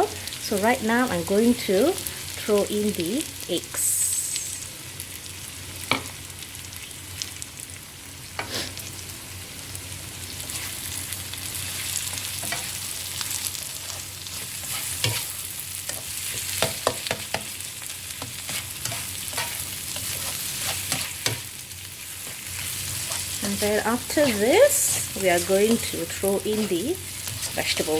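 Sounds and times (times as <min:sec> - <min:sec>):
food sizzling in oil: 0:00.0 - 0:27.9
spatula clacking and scraping pan: 0:12.1 - 0:12.8, 0:13.9 - 0:17.6, 0:18.2 - 0:21.5, 0:24.0 - 0:25.9.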